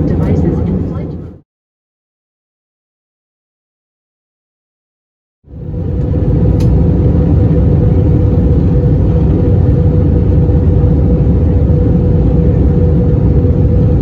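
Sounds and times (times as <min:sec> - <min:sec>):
constant hum: 0:00.0 - 0:01.4, 0:05.5 - 0:14.0
jet engine and airflow rumble: 0:00.0 - 0:01.4, 0:05.4 - 0:14.0.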